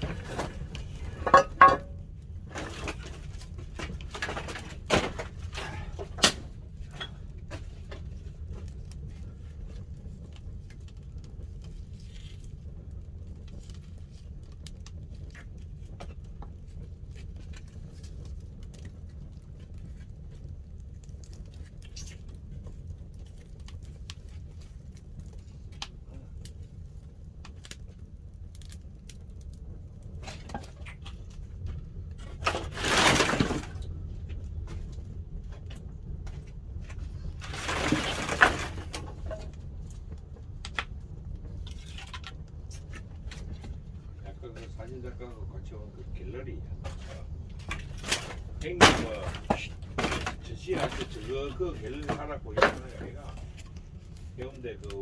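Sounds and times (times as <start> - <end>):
fire rumbling: 0.0 - 55.0
wood fire crackling and popping: 0.0 - 55.0.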